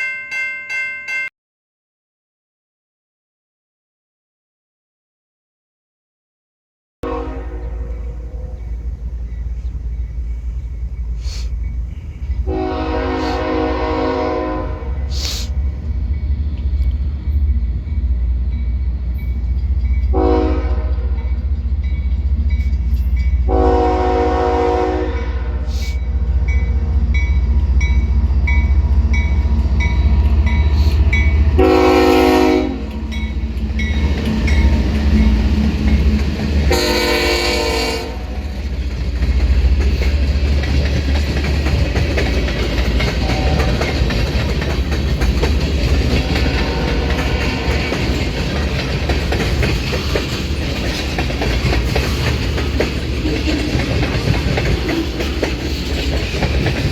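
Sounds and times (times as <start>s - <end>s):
train air horn blasts: 7.0s - 9.0s, 12.4s - 15.6s, 20.1s - 21.3s, 23.5s - 27.0s, 30.7s - 33.0s, 36.7s - 38.5s, 43.2s - 44.0s, 46.0s - 48.2s
diesel locomotive rumbling: 7.0s - 56.9s.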